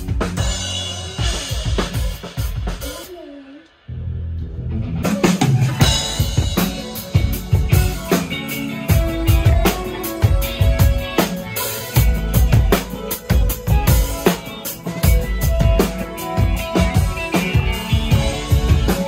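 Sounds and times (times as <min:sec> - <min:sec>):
live band playing: 0:00.0 - 0:03.6, 0:04.7 - 0:19.0
sustained bass: 0:03.8 - 0:11.2
drum kit hits: 0:05.1 - 0:19.0.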